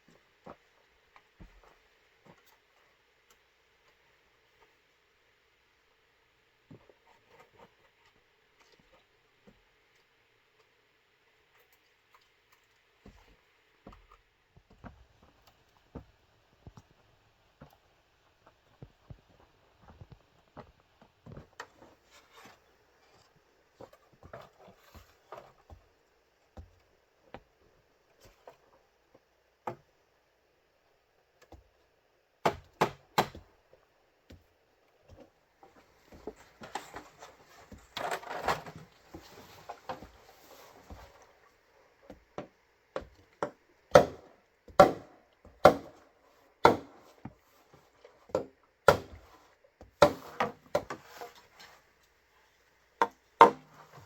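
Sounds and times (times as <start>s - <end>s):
tool striking bamboo: 43.9s - 46.0s, 46.6s - 47.0s
scraping and rubbing bamboo: 49.2s - 52.0s.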